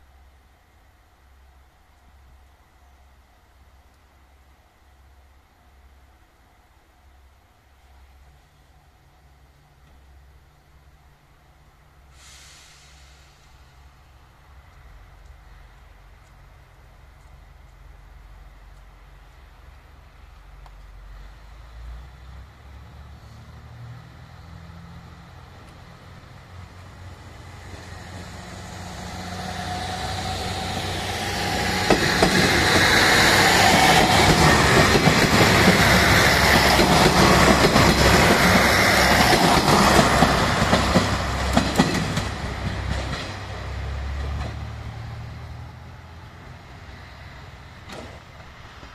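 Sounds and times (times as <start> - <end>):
diesel railcar engine running: 12.3 - 48.9
wheels clacking over rail joints: 30.5 - 44.8.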